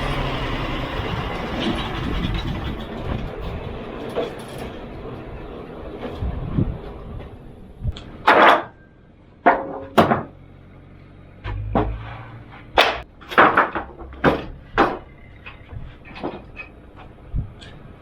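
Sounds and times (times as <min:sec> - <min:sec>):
low rumble: 0:11.2 - 0:18.0
wooden boards knocking: 0:11.5 - 0:12.0, 0:12.8 - 0:15.1.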